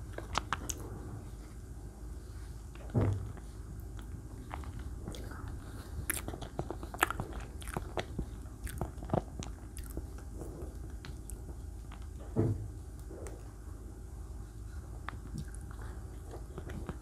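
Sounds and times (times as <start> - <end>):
chewing and mouth sounds: 0.0 - 1.0, 2.7 - 12.3, 14.6 - 17.0.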